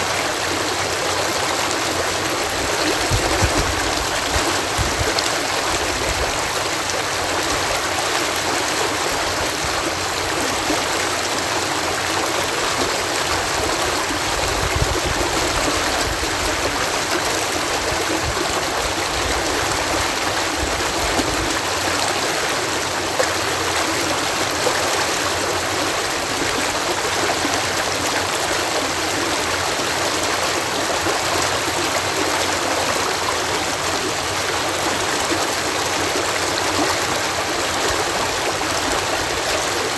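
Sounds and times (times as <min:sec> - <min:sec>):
water cascading: 0:00.0 - 0:13.5.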